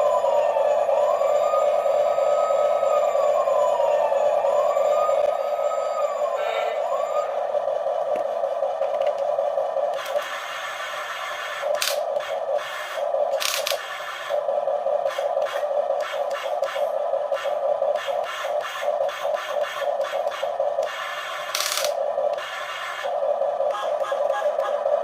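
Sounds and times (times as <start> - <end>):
small electric motors whirring: 10.0 - 14.4, 17.4 - 23.1.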